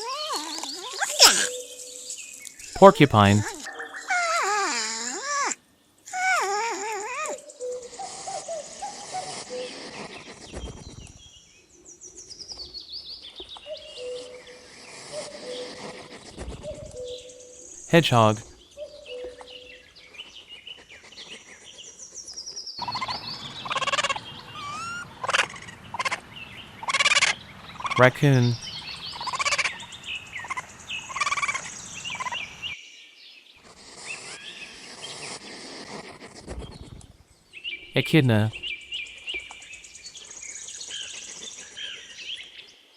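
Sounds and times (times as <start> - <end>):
hissy background: 2.7 - 3.6, 17.9 - 18.4, 28.0 - 28.7, 38.0 - 38.5
small birds chirping: 18.6 - 32.9
raccoon calls: 22.8 - 26.2, 26.8 - 32.7.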